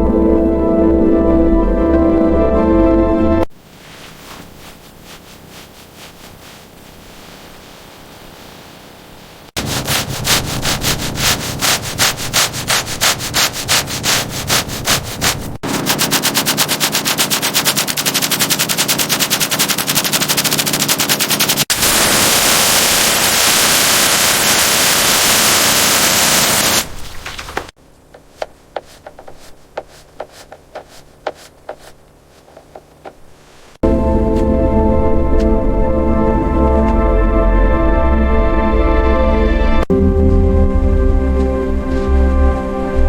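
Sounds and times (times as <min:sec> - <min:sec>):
power tool hammering: 0:15.6 - 0:26.8.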